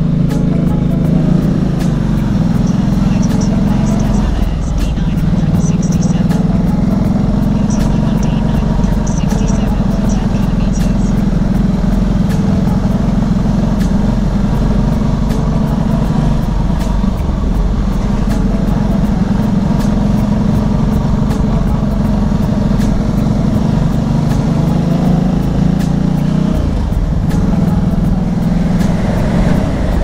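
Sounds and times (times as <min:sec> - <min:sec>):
motorcycle engine cruising: 0:00.0 - 0:30.0.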